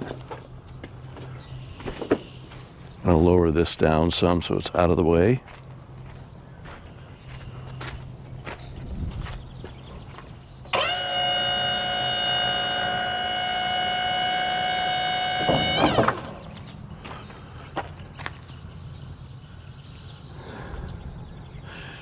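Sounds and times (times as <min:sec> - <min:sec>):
hydraulic pump whine: 0:10.7 - 0:17.2.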